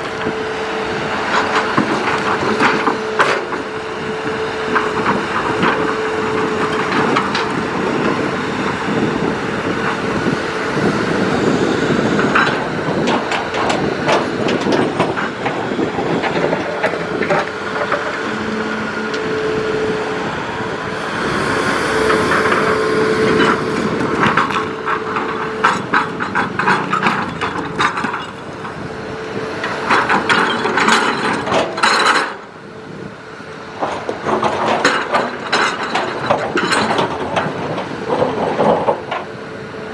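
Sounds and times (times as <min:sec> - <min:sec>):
excavator engine and hydraulics: 0:00.0 - 0:39.9
hydraulic whine: 0:00.0 - 0:39.9
steel and rock clanking: 0:04.7 - 0:32.5.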